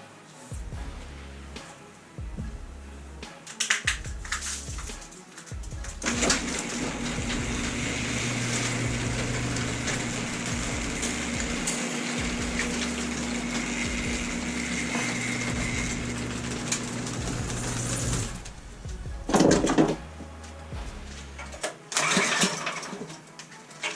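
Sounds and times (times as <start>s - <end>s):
machine humming and rushing: 5.7s - 21.6s.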